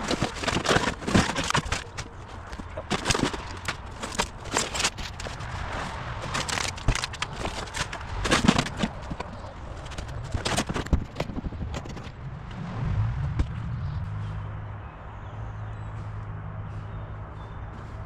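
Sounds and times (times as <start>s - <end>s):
scraping: 0.0s - 12.4s
knocks and clatter: 0.0s - 12.6s
low steady rumble: 11.4s - 15.3s.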